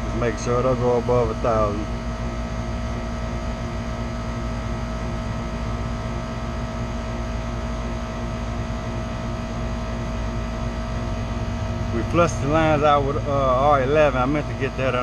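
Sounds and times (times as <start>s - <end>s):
electric motor humming: 10.1s - 15.0s.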